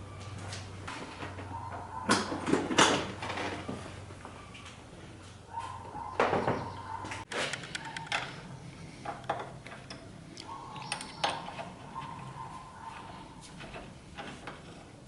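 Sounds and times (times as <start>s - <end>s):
tools knocking and clattering: 9.0s - 10.1s.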